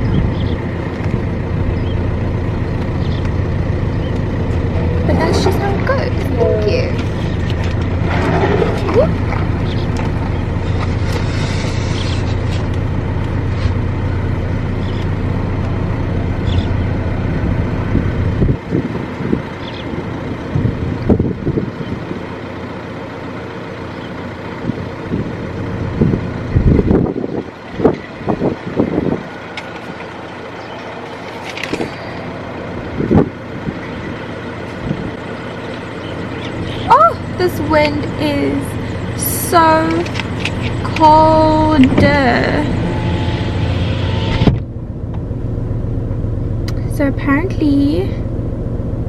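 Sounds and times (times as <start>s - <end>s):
car engine humming: 0.0s - 49.0s
vehicle rumble: 0.0s - 49.0s
wind gusts hitting microphone: 17.2s - 22.2s, 24.6s - 29.9s, 31.6s - 35.2s.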